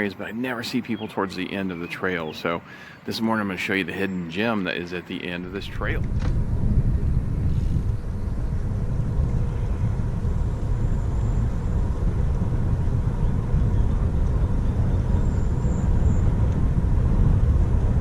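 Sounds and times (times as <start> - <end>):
wind buffeting microphone: 5.3 - 18.0.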